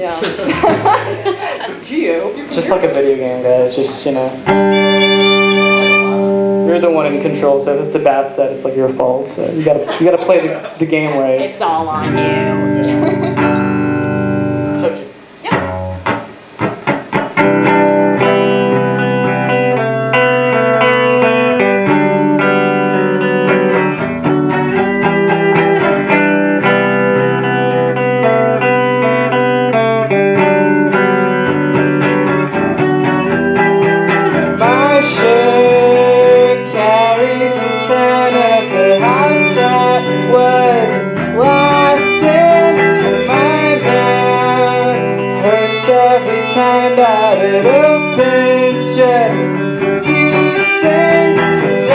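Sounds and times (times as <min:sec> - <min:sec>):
plucked guitar: 0:00.0 - 0:51.9
sliding melody: 0:04.4 - 0:07.3, 0:11.9 - 0:14.8, 0:17.4 - 0:51.9.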